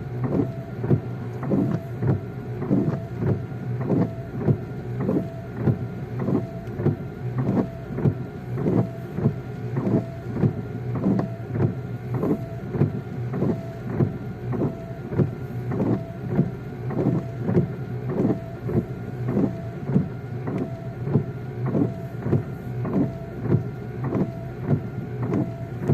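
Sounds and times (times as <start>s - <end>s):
low hum of engine and road: 0.0s - 25.9s
windshield wipers sweeping: 0.0s - 25.9s.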